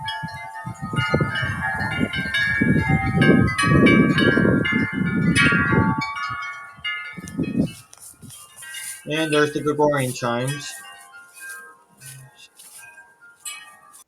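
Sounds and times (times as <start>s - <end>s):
wind buffeting microphone: 0.0s - 10.8s
metal wind chimes ringing: 0.0s - 14.0s.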